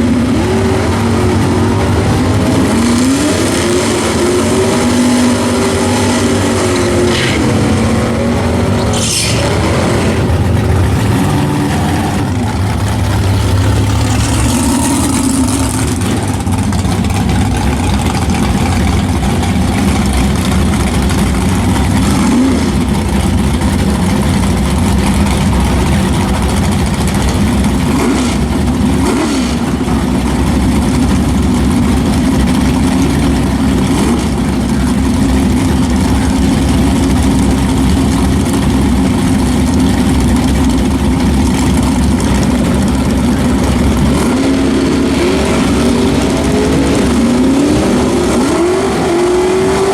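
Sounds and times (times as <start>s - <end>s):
car engine running: 0.0s - 49.9s.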